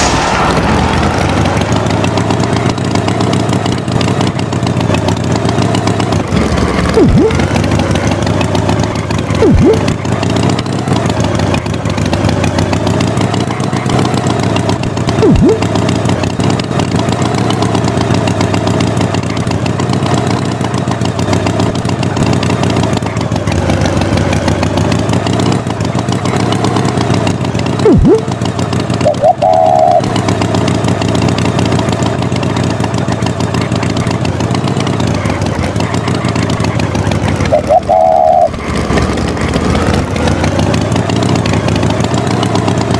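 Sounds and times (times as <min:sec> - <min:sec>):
tractor engine running: 0:00.0 - 0:42.9
short higher-pitched sound: 0:07.0 - 0:07.4, 0:09.4 - 0:09.9, 0:15.2 - 0:15.6, 0:27.8 - 0:28.3.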